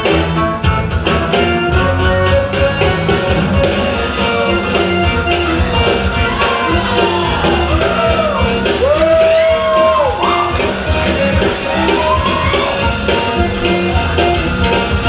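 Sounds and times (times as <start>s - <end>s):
loud rock music: 0.0s - 15.0s
person shouting long notes: 3.9s - 10.6s.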